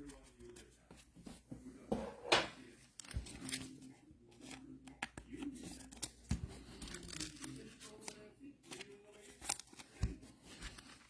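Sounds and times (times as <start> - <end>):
cards clicking and snapping: 2.8 - 11.0.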